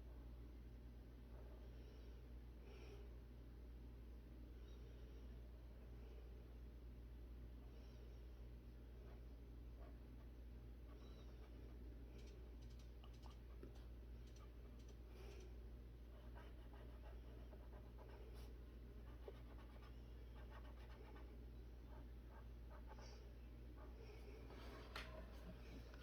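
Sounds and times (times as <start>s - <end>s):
low steady hum: 0.0s - 26.0s
pen scratching on paper: 16.1s - 23.9s.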